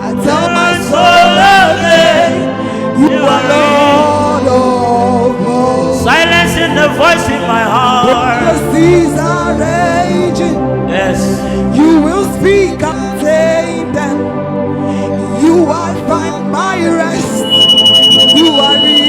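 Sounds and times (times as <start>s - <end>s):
sustained backing chords: 0.0s - 19.0s
person singing wavering ad-libs: 15.4s - 19.0s.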